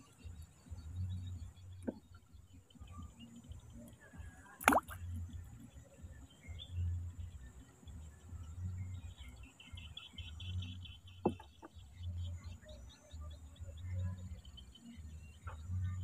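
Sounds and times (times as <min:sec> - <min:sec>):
bird chirping: 0:00.0 - 0:16.0
soft low thuds: 0:00.2 - 0:09.2.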